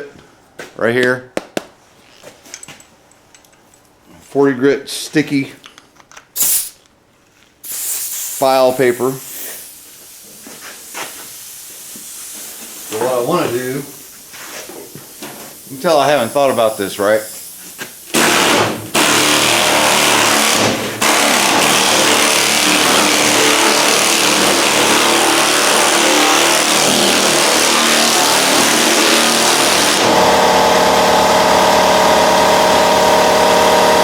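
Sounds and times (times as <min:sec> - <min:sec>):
pneumatic sander sanding metal: 0:07.7 - 0:34.0.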